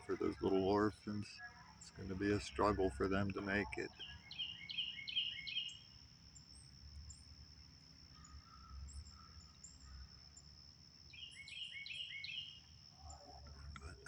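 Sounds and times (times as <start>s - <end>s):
high-pitched insect drone: 0.0s - 6.7s
songbird calling: 0.0s - 7.2s, 8.0s - 14.0s.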